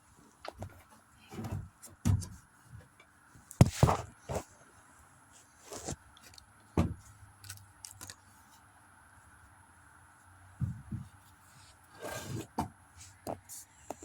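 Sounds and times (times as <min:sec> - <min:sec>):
thumps of things handled: 0:00.5 - 0:02.9, 0:03.6 - 0:04.5, 0:06.7 - 0:07.1, 0:10.6 - 0:11.2.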